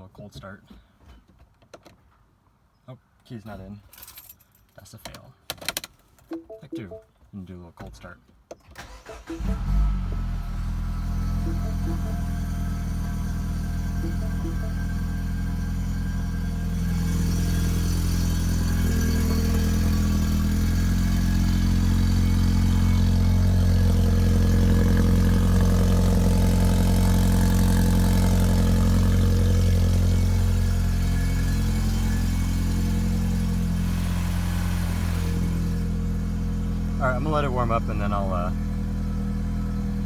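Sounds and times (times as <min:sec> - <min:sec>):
car engine idling: 0:08.8 - 0:40.0.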